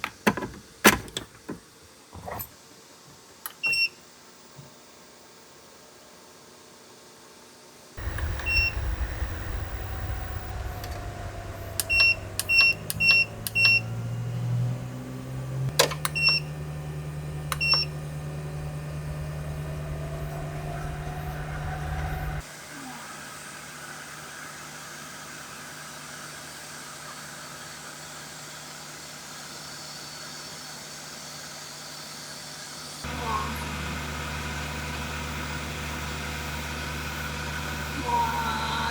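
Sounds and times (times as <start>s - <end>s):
vehicle engine rumbling: 8.0s - 22.4s
short electronic button beeps: 8.2s - 9.0s, 11.8s - 14.1s, 15.8s - 16.5s, 17.5s - 17.9s.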